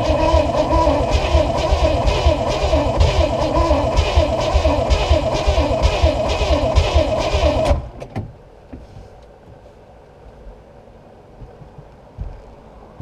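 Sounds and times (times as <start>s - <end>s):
starter motor cranking engine: 0.0s - 8.0s.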